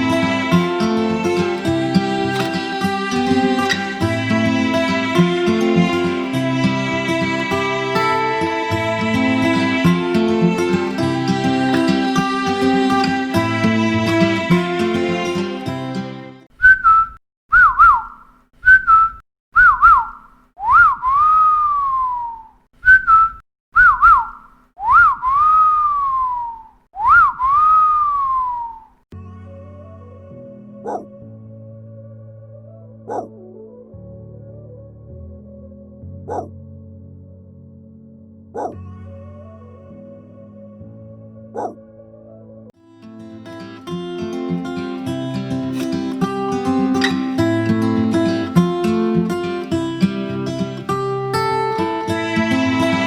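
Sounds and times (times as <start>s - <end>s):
plucked guitar-like melody: 0.0s - 16.4s, 42.9s - 53.0s.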